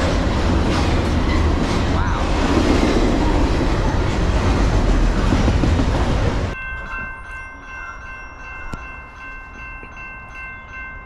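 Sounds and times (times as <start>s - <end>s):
freight train wheels rumbling: 0.0s - 8.0s.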